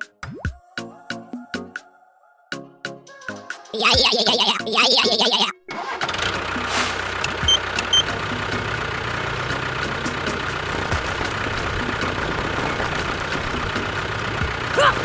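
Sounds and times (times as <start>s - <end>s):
engine idling: 6.0s - 15.0s.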